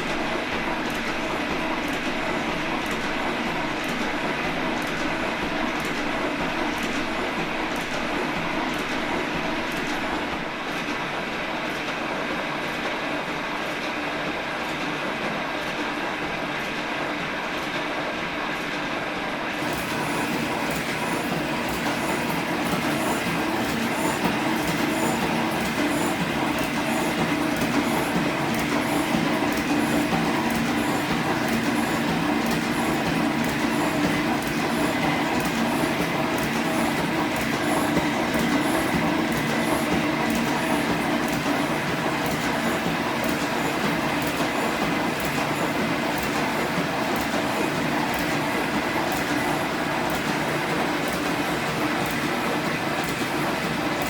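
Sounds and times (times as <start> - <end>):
metal shaper cutting clatter: 19.6 - 53.4.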